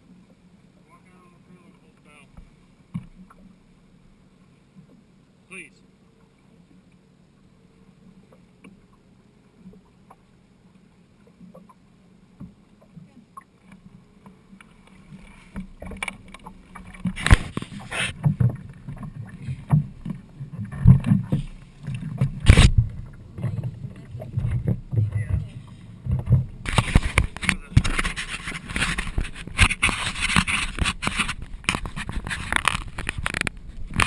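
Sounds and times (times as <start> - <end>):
boat knocking: 12.3 - 34.0
irregular low thumping: 18.2 - 27.4.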